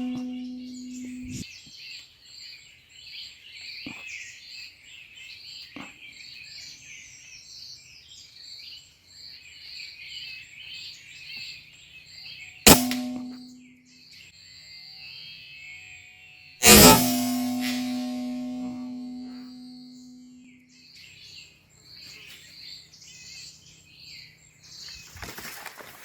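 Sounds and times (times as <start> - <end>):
air rifle shot: 12.7 - 13.4, 16.6 - 18.7.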